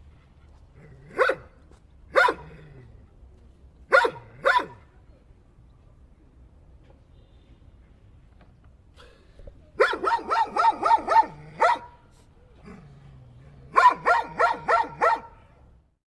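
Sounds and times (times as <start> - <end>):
dog barking: 1.1 - 1.5, 2.1 - 2.5, 3.9 - 4.8, 9.8 - 12.0, 13.7 - 15.5.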